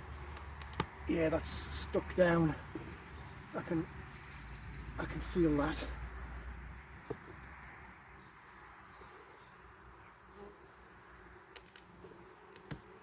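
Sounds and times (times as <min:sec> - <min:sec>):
honeybees humming: 0:00.0 - 0:13.0
small sharp clicks: 0:00.3 - 0:01.0, 0:11.5 - 0:11.9.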